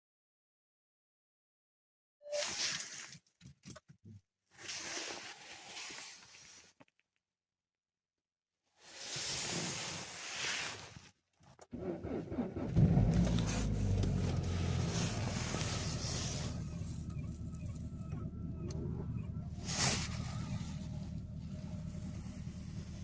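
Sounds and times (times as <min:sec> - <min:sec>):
engine cold starting and idling: 0:11.7 - 0:23.0.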